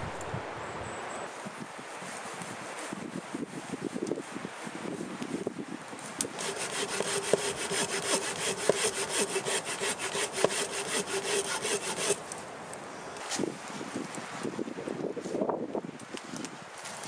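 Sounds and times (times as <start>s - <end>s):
hand saw cutting wood: 6.3s - 12.4s.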